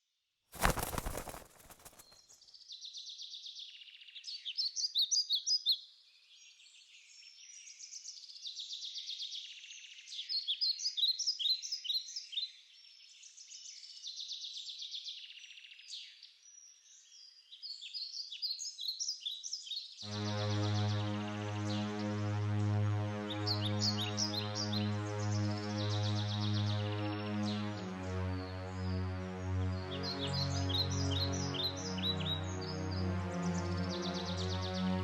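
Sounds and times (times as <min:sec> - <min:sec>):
synthesizer music with low tones: 0:20.1 - 0:35.0
songbirds singing: 0:23.3 - 0:35.0.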